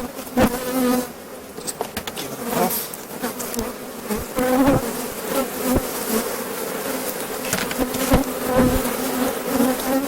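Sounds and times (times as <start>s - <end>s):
honeybees buzzing: 0.0s - 10.0s.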